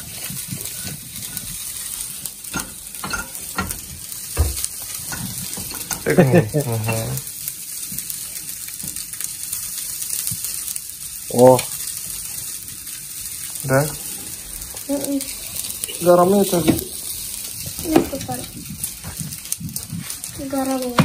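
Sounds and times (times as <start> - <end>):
fried rice sizzling in pan: 0.0 - 21.0.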